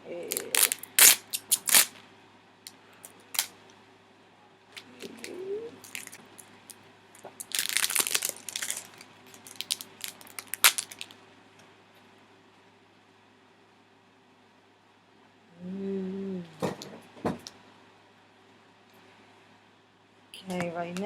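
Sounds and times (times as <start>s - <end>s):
plastic wrapping crinkling: 0.3s - 2.0s, 3.0s - 3.5s, 4.8s - 11.2s.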